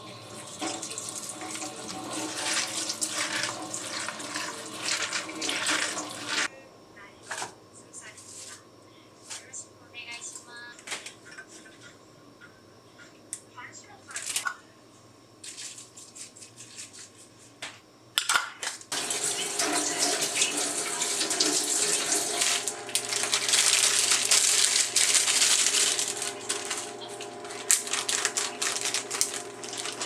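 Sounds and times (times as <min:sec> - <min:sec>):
tap water running into sink: 0:00.2 - 0:06.5, 0:18.9 - 0:24.9.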